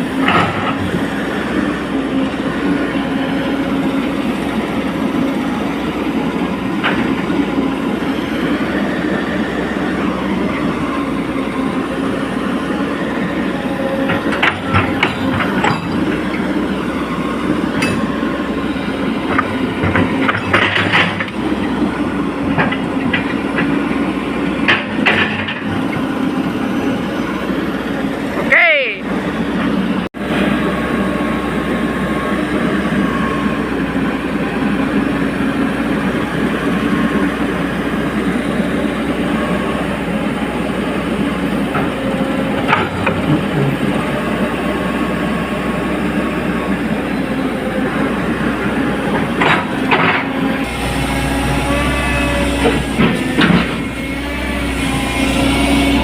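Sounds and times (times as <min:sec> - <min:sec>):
excavator engine and hydraulics: 0:00.0 - 0:56.0
metal clanks and squeaks: 0:14.0 - 0:16.5.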